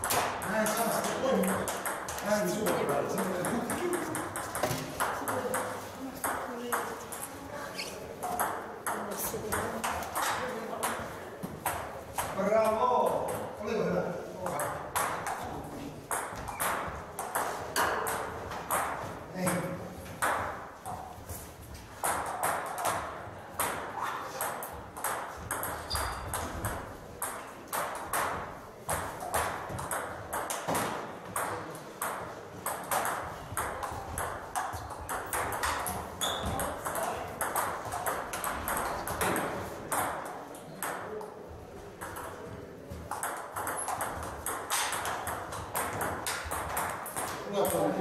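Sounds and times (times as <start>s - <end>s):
ping-pong balls clicking off paddles: 0.0s - 13.6s, 14.4s - 48.0s
ping-pong balls bouncing on tables: 0.0s - 48.0s.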